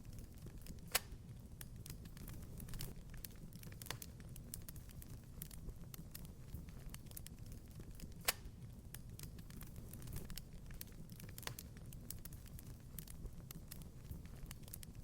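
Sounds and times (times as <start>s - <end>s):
fire snaps and pops: 0.0s - 15.0s
low rumble of flame: 0.0s - 15.0s.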